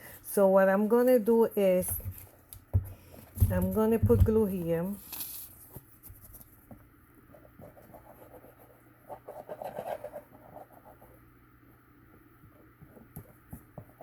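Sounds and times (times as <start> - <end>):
cardstock scratching and rubbing: 7.4 - 11.1.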